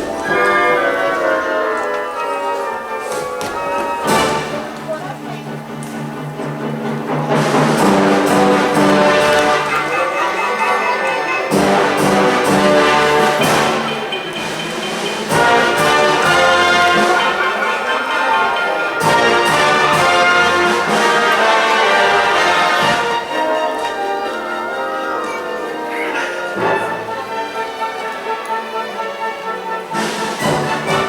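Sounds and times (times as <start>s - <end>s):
orchestral ballet music with brass: 0.0s - 31.0s.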